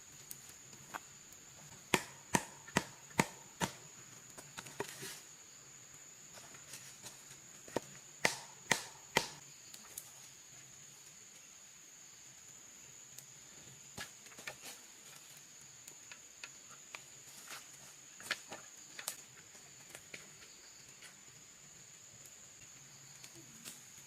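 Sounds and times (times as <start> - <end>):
blade chopping wood: 1.8 - 3.8, 7.7 - 9.4.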